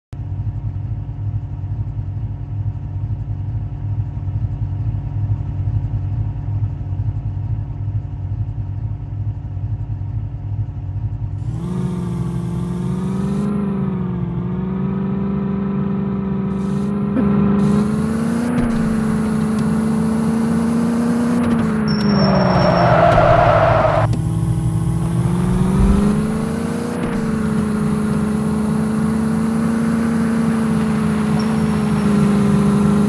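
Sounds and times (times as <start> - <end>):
engine rumbling and revving: 11.1 - 33.0.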